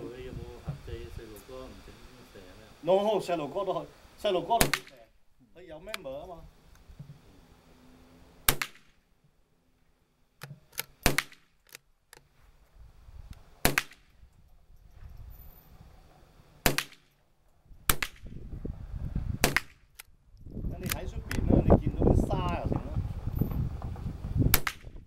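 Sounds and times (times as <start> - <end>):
rifle shots: 4.5 - 5.0, 8.4 - 9.0, 10.7 - 11.6, 13.6 - 14.1, 16.6 - 17.1, 19.4 - 19.9
rifle bolt clicks: 10.4 - 12.3, 19.5 - 20.1, 20.8 - 21.4.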